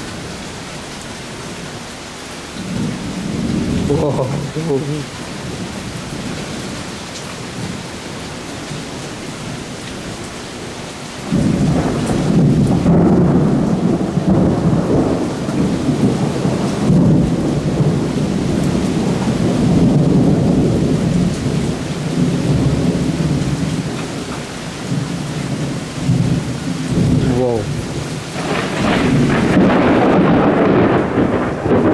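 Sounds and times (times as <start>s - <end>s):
heavy rain falling: 0.0s - 31.9s
thunder rumbling: 2.6s - 6.9s, 11.2s - 31.9s.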